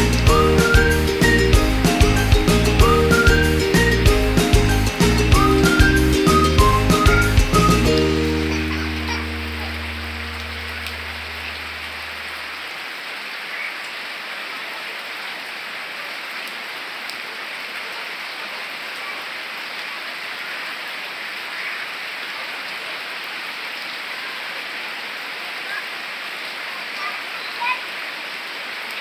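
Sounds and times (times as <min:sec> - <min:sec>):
rain drop ticks: 0:00.0 - 0:12.6
steady rain hiss: 0:00.0 - 0:29.0.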